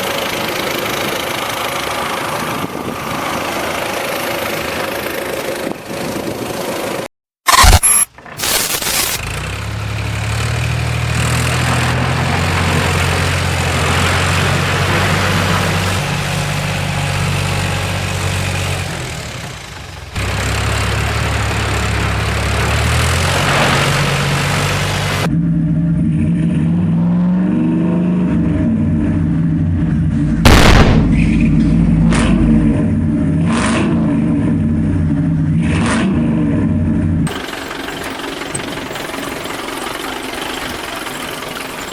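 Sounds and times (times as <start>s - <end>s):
vehicle engine revving: 20.2s - 41.9s
sharp bangs: 30.4s - 32.9s.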